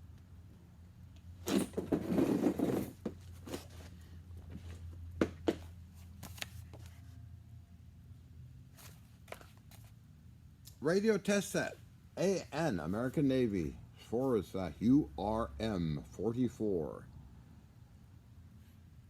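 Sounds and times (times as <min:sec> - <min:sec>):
objects rustling and scraping: 0:01.4 - 0:07.2, 0:08.7 - 0:10.0.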